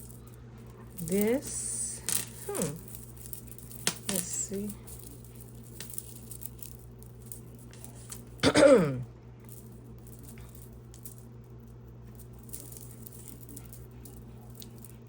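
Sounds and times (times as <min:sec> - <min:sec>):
beaded jewelry clicking and rattling: 0:00.0 - 0:08.4, 0:09.4 - 0:15.0.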